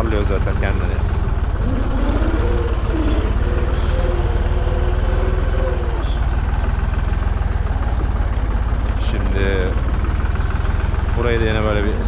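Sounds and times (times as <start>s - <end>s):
tractor engine running under load: 0.0s - 12.0s
wavering higher tone: 1.6s - 6.3s.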